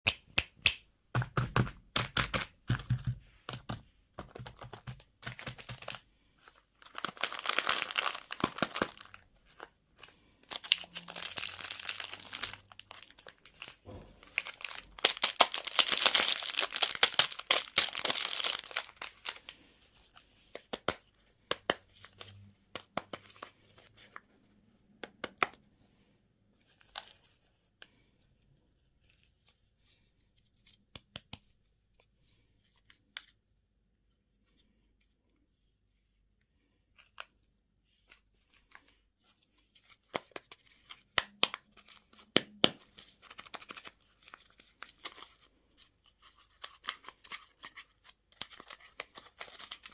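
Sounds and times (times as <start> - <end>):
candy wrappers crinkling: 1.2 - 24.2, 39.6 - 49.9.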